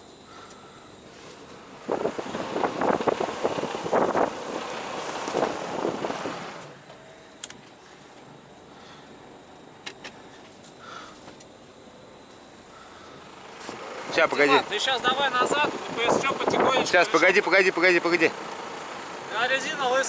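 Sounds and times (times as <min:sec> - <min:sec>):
wind buffeting microphone: 0:01.6 - 0:06.7, 0:13.7 - 0:17.2.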